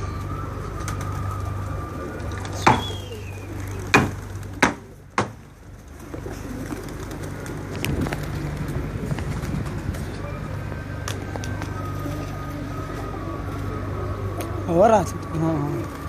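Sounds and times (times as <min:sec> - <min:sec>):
low hum: 0:00.0 - 0:16.0
pigeons cooing: 0:00.0 - 0:16.0
sharp knocks: 0:02.6 - 0:02.9, 0:03.9 - 0:05.4.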